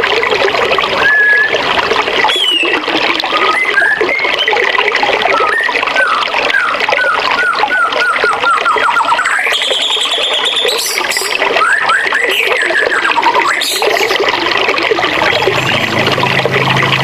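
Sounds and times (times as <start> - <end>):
rushing stream water: 0.0 - 17.0
songbird singing: 5.3 - 14.2.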